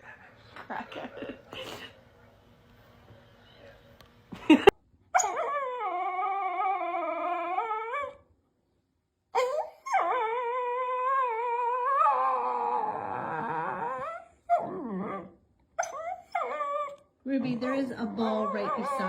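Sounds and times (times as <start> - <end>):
dog yelp: 5.2 - 6.6, 15.8 - 17.0
dog howling: 5.2 - 8.2, 9.4 - 19.0.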